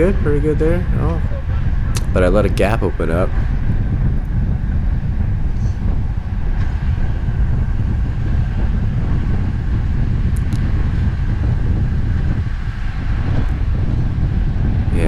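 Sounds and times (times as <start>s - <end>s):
tyre and drivetrain noise: 0.0s - 15.0s
wind buffeting microphone: 0.0s - 15.0s
light ticks: 10.4s - 10.7s.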